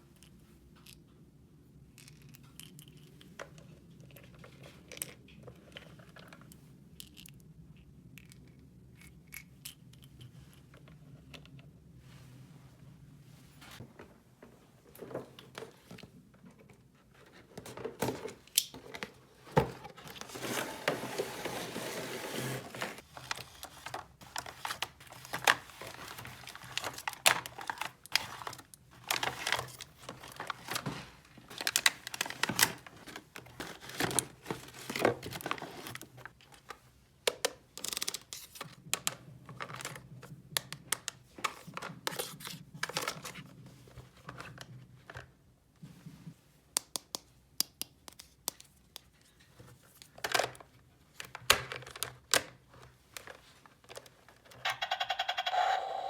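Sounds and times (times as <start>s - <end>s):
plastic packaging crinkling: 20.0s - 36.1s.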